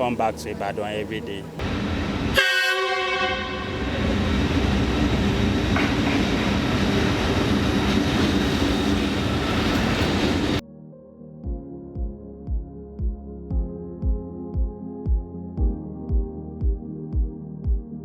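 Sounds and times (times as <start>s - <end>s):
train rumbling along track: 0.0s - 10.6s
train horn: 2.3s - 4.2s.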